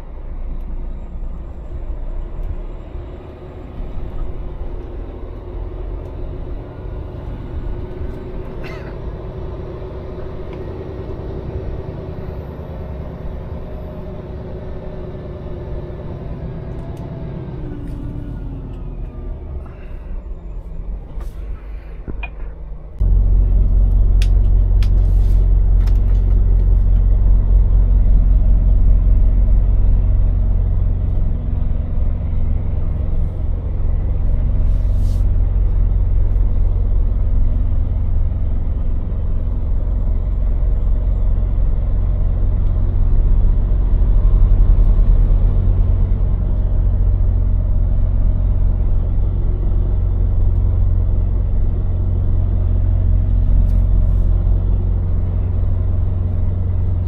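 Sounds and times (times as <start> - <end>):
lorry diesel engine droning: 0.0 - 57.0.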